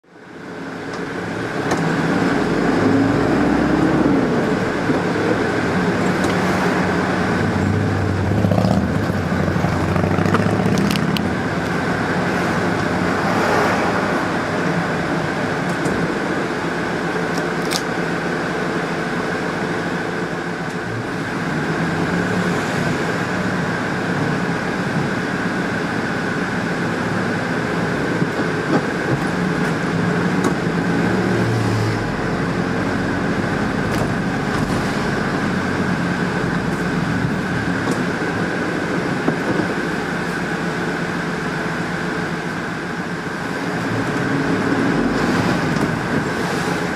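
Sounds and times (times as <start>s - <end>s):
vehicle engines passing: 0.2s - 46.9s.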